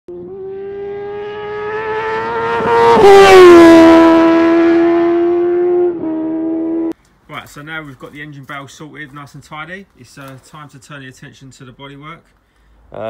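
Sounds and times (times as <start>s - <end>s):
car engine passing at high revs: 0.1s - 7.0s.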